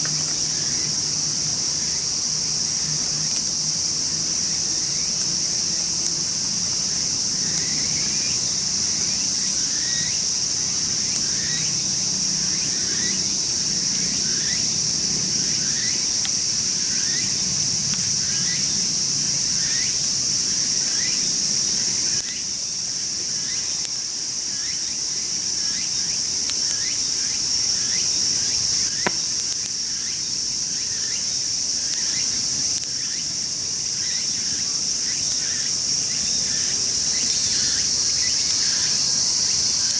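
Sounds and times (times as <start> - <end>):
insects chorus: 0.0 - 39.9
sharp pop: 29.0 - 29.4.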